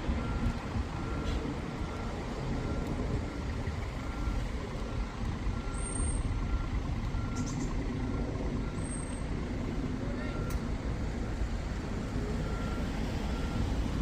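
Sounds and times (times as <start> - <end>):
diesel engine rumbling: 0.0 - 14.0
short electronic beeps: 4.0 - 7.8.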